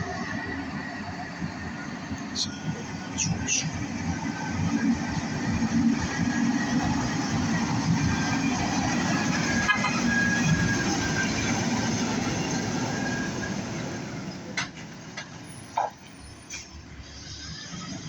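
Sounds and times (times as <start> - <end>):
heavy vehicle engine rumbling: 0.0 - 18.0.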